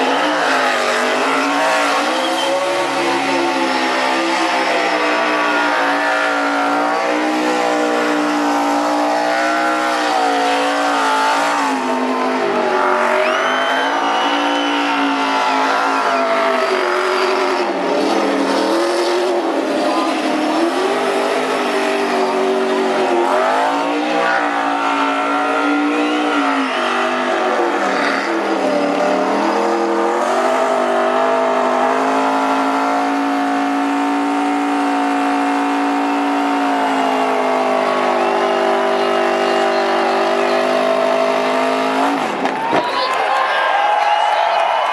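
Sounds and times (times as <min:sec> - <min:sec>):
tyres squealing: 0:00.0 - 0:11.3
race car engine revving: 0:00.0 - 0:42.6.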